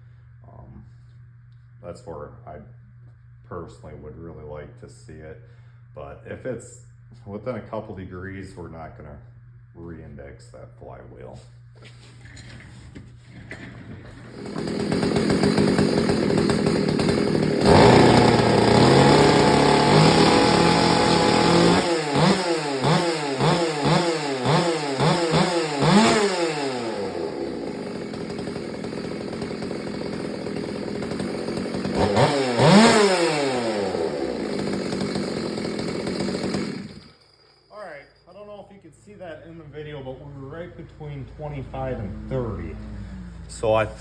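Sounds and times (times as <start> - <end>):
chainsaw engine revving: 13.5 - 37.5, 39.4 - 44.0.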